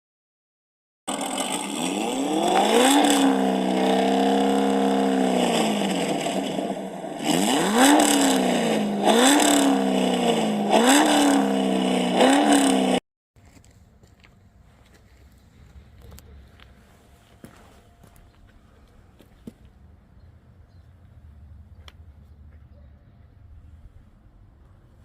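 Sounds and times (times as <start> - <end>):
engine revving: 1.1 - 13.0.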